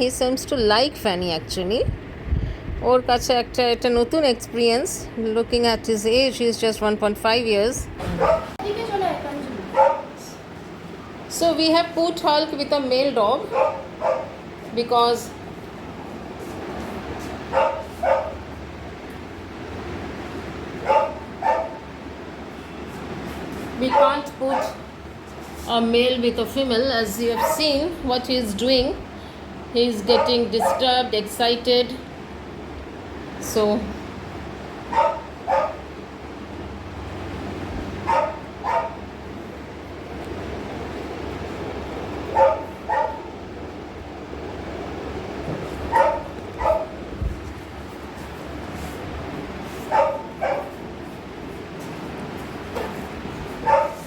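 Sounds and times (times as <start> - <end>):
dog barking: 8.1 - 8.6, 9.7 - 10.2, 13.5 - 14.4, 17.5 - 18.4, 20.8 - 21.9, 23.9 - 24.8, 27.4 - 27.7, 30.1 - 31.0, 34.9 - 35.9, 38.0 - 39.0, 42.3 - 43.3, 45.9 - 47.0, 49.9 - 50.8, 53.6 - 54.0.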